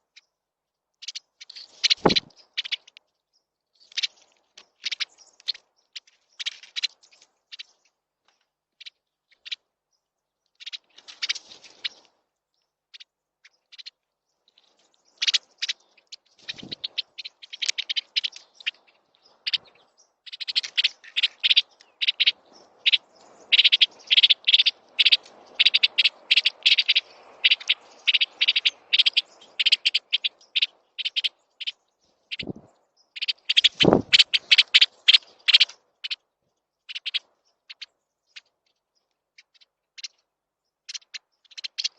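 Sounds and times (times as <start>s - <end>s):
songbirds chirping: 0.0s - 41.9s
low thumps: 2.0s - 2.3s.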